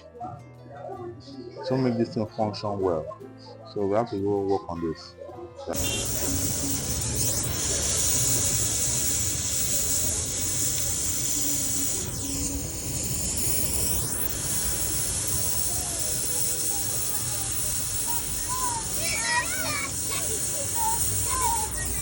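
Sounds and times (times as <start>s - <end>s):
welding hiss: 5.8s - 22.0s.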